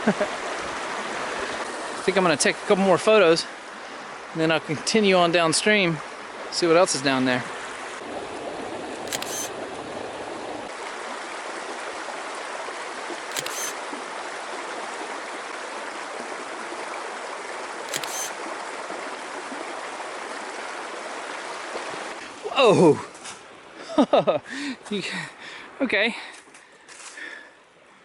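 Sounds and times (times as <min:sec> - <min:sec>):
camera shutter clicks: 0:09.1 - 0:09.5, 0:13.3 - 0:13.8, 0:17.9 - 0:18.4.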